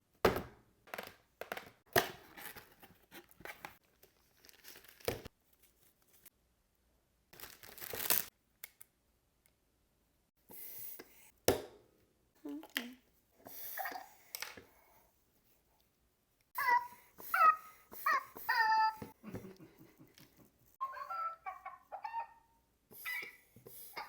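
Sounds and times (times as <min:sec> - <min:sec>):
rustling: 0:02.2 - 0:06.3
packaging tearing and crinkling: 0:03.8 - 0:05.3, 0:07.4 - 0:08.3.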